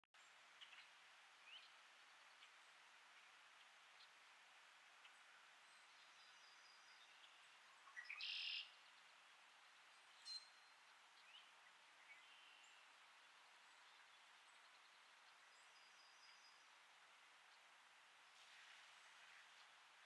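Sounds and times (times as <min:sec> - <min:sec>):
songbirds calling: 0:00.2 - 0:20.0
steady hiss: 0:00.2 - 0:20.0
trilled bird song: 0:05.0 - 0:09.2, 0:09.8 - 0:16.8.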